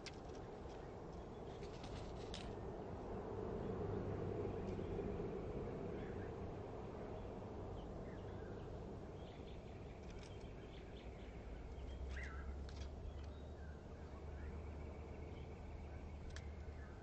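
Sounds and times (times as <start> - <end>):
bird chirps: 9.2 - 17.0.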